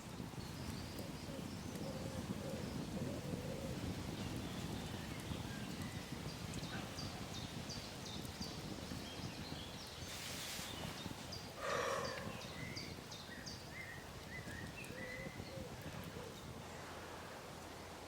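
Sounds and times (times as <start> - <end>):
rustle: 0.0 - 18.0
bird chirping: 10.7 - 15.6.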